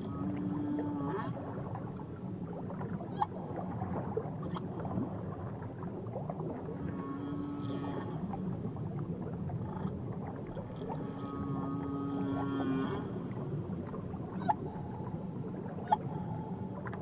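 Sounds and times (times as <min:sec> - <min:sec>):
whale song: 0:06.7 - 0:17.0
low underwater rumble: 0:07.5 - 0:17.0.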